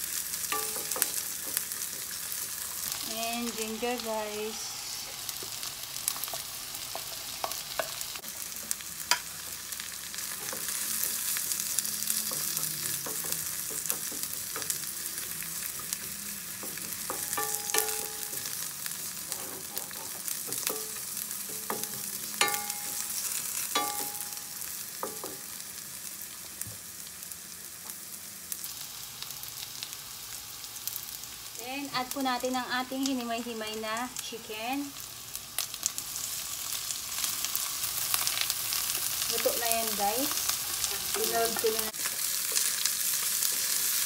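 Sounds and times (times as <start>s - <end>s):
vegetables sizzling in hot oil: 0.0s - 44.0s
spatula knocking and scraping pan: 0.5s - 2.6s, 12.3s - 14.9s, 15.8s - 18.6s, 19.2s - 24.4s, 40.8s - 42.0s.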